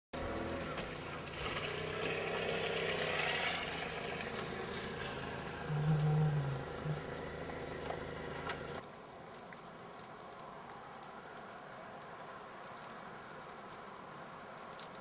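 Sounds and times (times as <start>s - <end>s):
motor humming: 0.2s - 8.8s.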